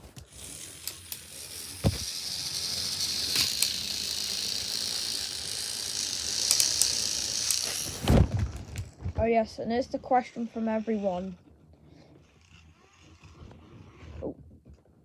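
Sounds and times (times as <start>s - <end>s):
toy train motors whirring: 0.0s - 14.4s
thump: 1.8s - 2.1s.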